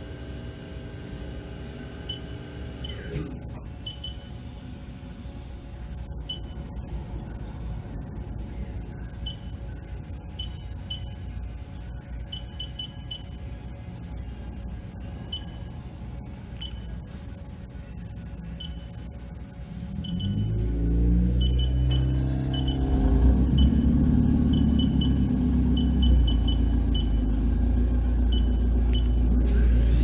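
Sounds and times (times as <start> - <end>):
machine spindle whine: 0.0 - 5.9, 19.2 - 30.0
low machine hum: 0.0 - 30.0
keypad beeps: 3.8 - 4.3, 6.3 - 6.6, 9.2 - 9.6, 10.3 - 11.2, 12.2 - 13.4, 15.2 - 15.7, 16.6 - 17.0, 18.6 - 19.0, 20.0 - 20.6, 21.4 - 27.2, 28.3 - 29.2.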